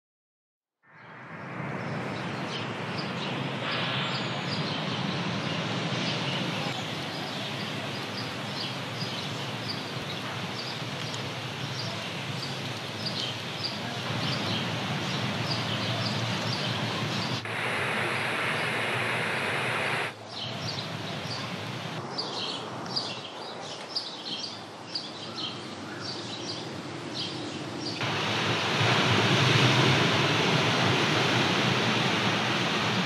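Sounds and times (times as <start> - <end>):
rushing outdoor background noise: 1.0 - 33.0
bird chirping: 11.8 - 28.0.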